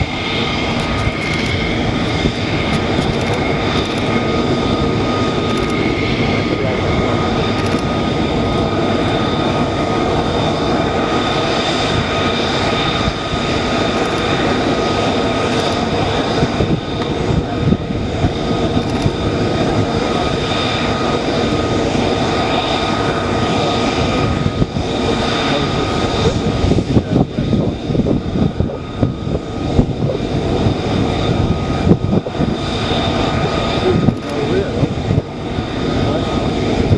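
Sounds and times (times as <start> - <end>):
jet engine running: 0.0 - 36.9.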